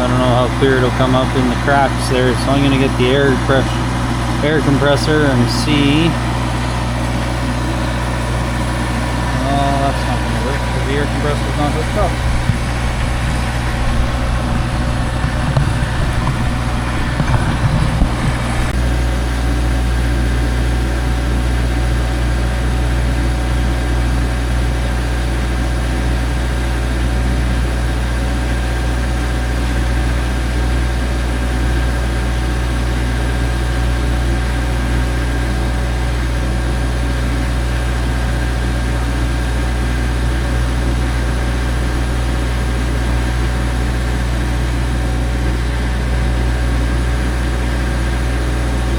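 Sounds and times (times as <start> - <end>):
engine idling: 0.0 - 48.9
uneven rumbling noise: 0.5 - 18.9.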